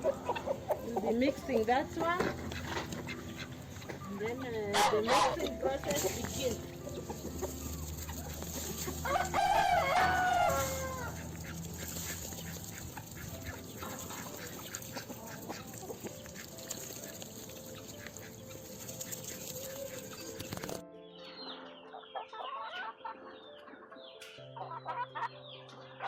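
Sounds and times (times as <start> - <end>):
chickens clucking: 0.0 - 26.0
rooster crowing: 9.0 - 11.2.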